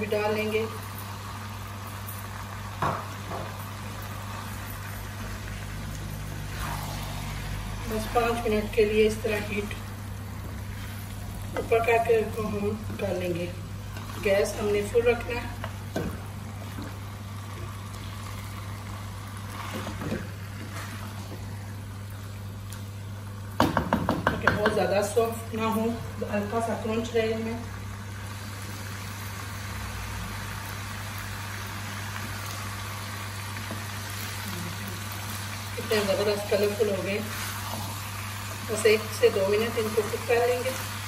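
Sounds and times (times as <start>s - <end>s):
food frying in a wok: 0.0s - 41.0s
wooden spatula knocking pan: 23.6s - 24.8s.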